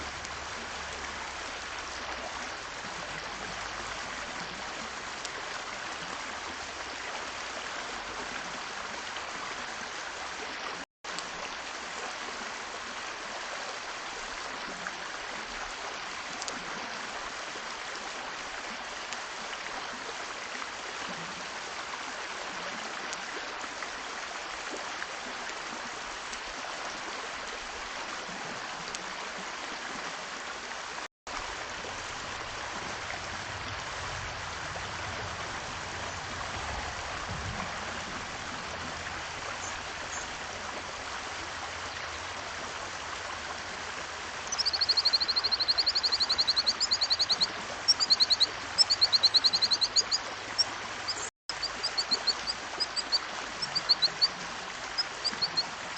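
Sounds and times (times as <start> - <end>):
bird singing high repeated notes: 44.5 - 50.2.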